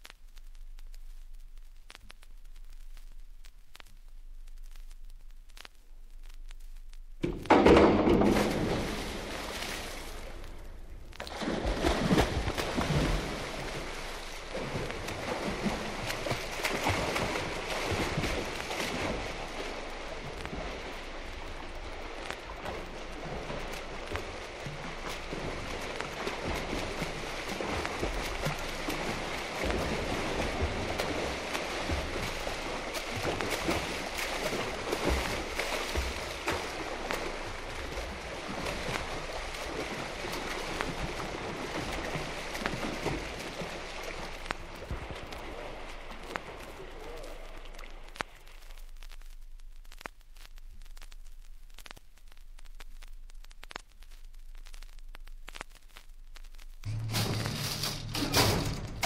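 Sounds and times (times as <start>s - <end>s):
record surface hiss: 0.0s - 59.0s
vinyl crackles and clicks: 0.0s - 59.0s
low slaps of swim strokes: 4.5s - 52.0s
swimmer splashing: 7.6s - 48.1s
low hum: 56.7s - 59.0s.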